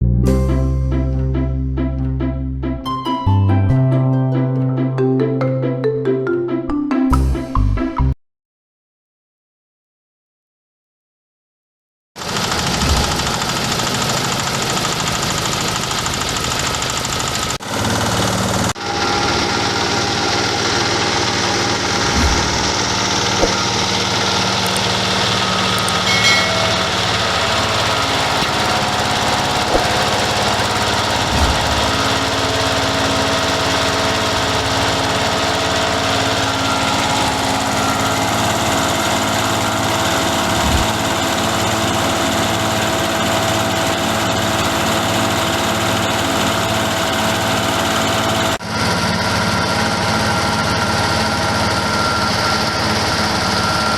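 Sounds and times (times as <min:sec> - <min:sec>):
diesel engine running: 0:12.2 - 0:53.9
grinding mill: 0:12.2 - 0:53.9
short knocks: 0:22.0 - 0:23.8.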